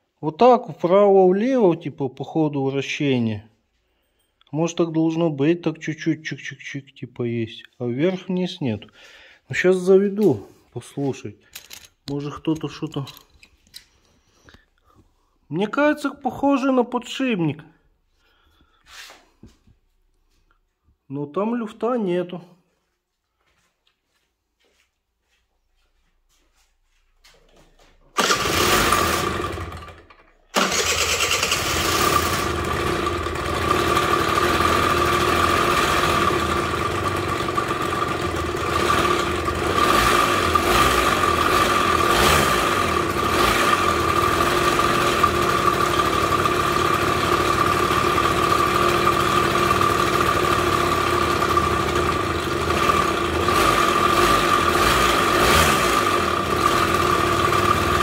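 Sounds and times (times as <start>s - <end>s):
scooter engine starting and running: 28.1s - 58.0s.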